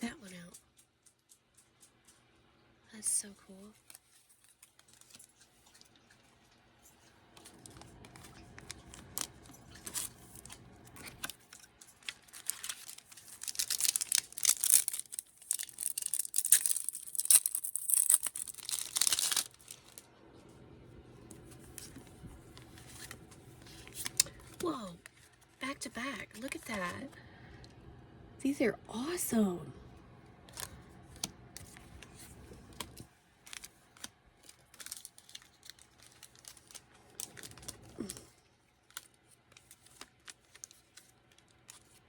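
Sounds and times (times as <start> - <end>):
wrapper crinkling and tearing: 3.8 - 6.2, 7.0 - 20.1, 21.5 - 25.7, 30.5 - 42.0.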